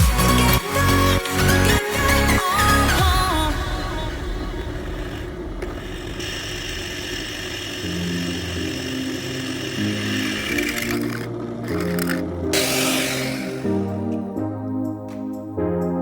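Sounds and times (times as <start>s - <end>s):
power tool motor whirring: 5.6s - 14.0s
soft background music: 7.8s - 16.0s.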